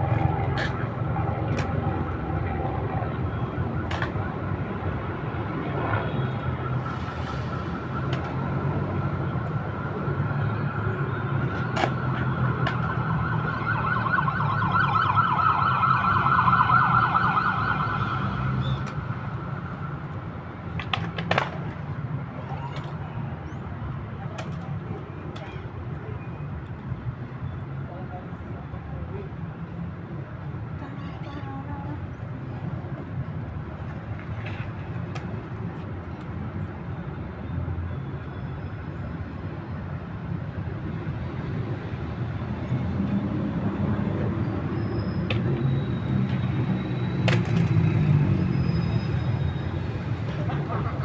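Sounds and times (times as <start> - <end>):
warbling emergency siren: 0.0 - 20.4
city traffic rumble: 0.0 - 51.0.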